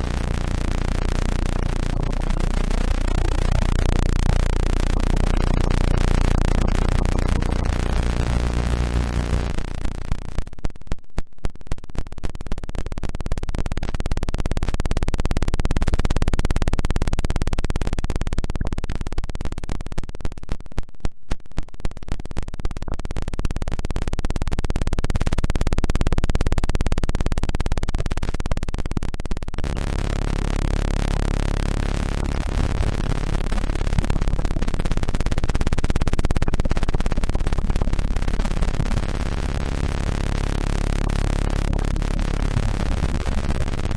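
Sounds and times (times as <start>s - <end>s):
buzzing electronic tones: 0.0s - 10.4s, 29.6s - 43.9s
steady low tones: 0.0s - 10.4s, 29.6s - 43.9s.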